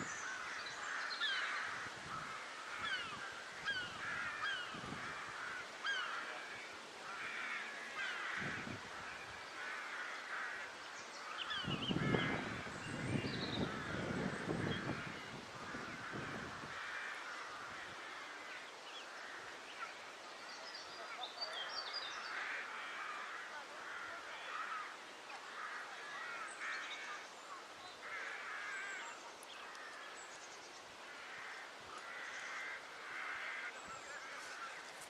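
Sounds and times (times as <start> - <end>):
crows cawing: 0.1 - 19.8, 22.2 - 27.2, 28.0 - 30.2, 31.0 - 35.0.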